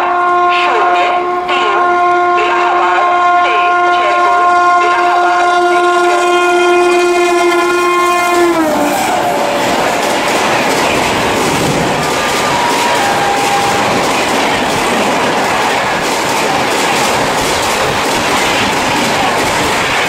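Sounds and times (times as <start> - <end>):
train horn blast: 0.0 - 9.7
train coaches rushing past: 0.0 - 20.0.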